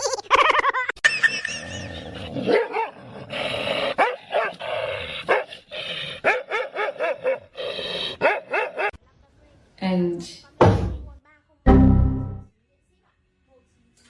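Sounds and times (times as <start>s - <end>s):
dog barking: 4.0s - 4.6s, 6.2s - 7.5s, 8.2s - 9.0s.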